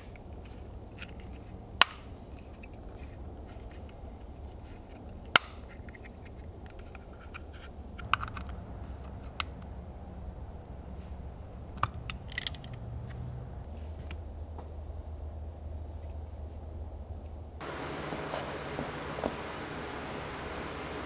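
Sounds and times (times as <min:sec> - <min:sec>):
low steady hum: 0:08.0 - 0:21.0
tools and metal parts clicking: 0:11.5 - 0:13.3.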